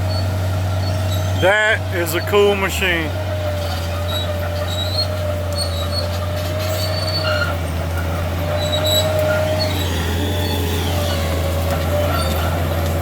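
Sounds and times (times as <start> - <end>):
diesel engine running: 0.0 - 13.0
high squeaks of moving parts: 3.6 - 7.6, 8.6 - 11.3.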